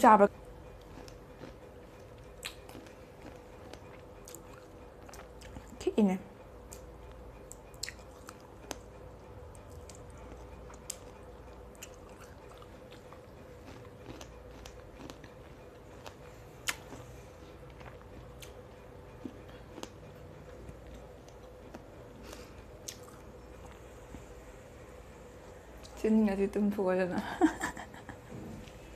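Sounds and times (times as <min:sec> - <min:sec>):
faint steady hum: 0:00.0 - 0:28.9
person chewing crunchy food: 0:00.5 - 0:05.8, 0:06.6 - 0:23.8.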